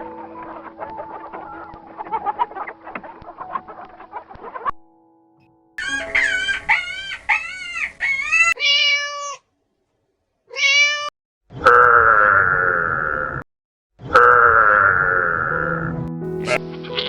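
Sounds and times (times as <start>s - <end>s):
long loud animal call: 5.8s - 9.3s
kittens meowing: 5.8s - 9.4s, 10.5s - 11.1s, 16.4s - 17.0s.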